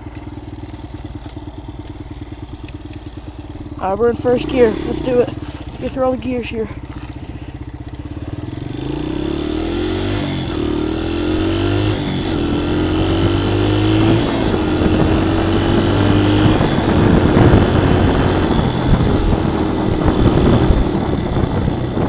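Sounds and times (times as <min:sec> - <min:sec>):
dirt bike engine accelerating: 0:00.0 - 0:22.0
wind noise on microphone: 0:09.7 - 0:22.0.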